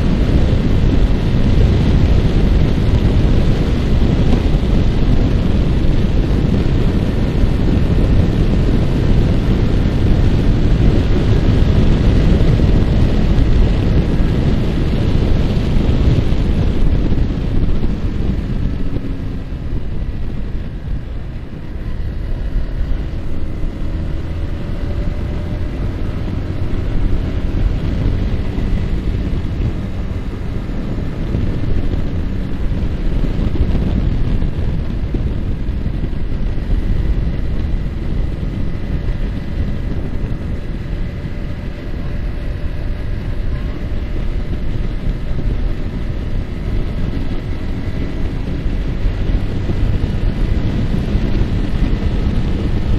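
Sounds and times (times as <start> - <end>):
motorcycle engine running: 0.0 - 52.9
wind rushing over microphone: 0.0 - 52.9.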